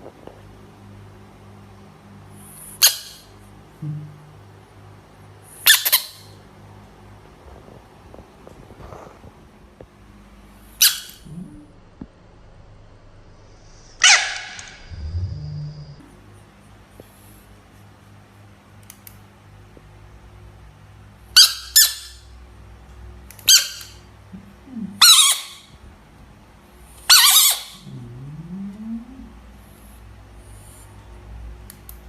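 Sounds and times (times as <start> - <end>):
low animal call: 13.7 - 16.1, 24.3 - 25.7, 27.1 - 29.6.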